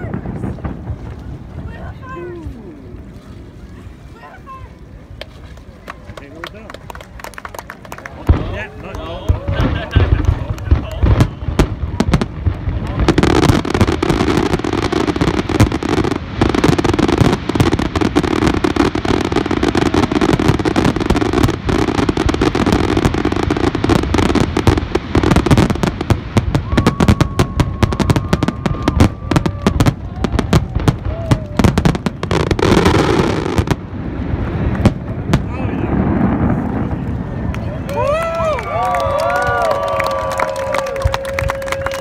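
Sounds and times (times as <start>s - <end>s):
fireworks bursting: 0.0s - 3.0s, 8.1s - 40.2s.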